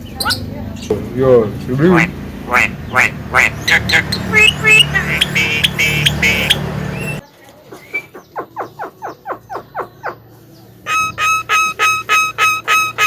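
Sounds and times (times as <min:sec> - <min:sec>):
loud mixed noise: 0:01.8 - 0:07.2
bird call with falling notes: 0:03.6 - 0:07.2, 0:10.8 - 0:13.0.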